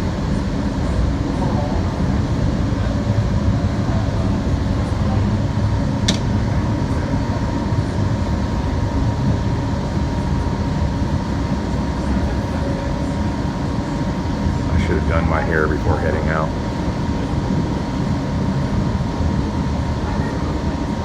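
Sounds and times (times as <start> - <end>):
constant whine: 0.0 - 21.0
sharp click: 6.1 - 6.3.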